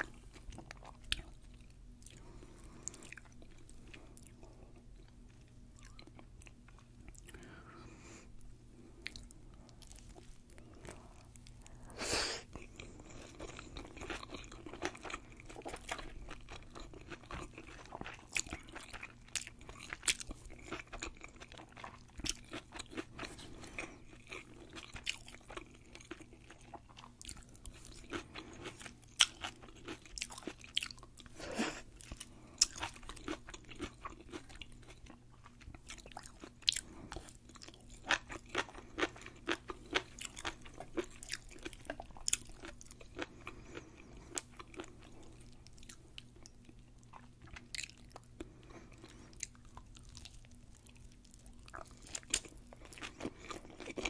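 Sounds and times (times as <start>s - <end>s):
crunching fried food: 12.5s - 54.0s.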